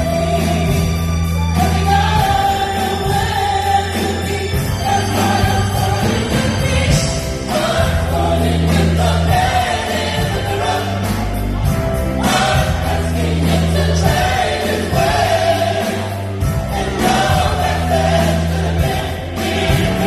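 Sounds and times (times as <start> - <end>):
gospel choir singing: 0.0 - 20.0
instrumental accompaniment: 0.0 - 20.0.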